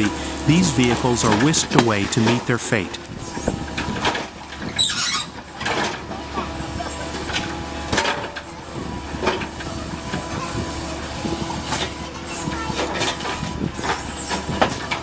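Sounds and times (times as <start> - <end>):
heavy machinery running: 0.0 - 3.0.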